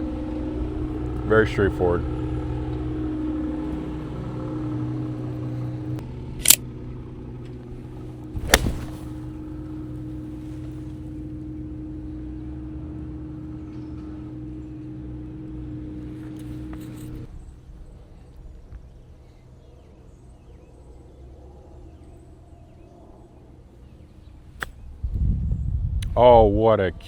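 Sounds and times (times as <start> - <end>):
engine hum: 0.0 - 27.0
golf club striking ball: 8.4 - 9.5.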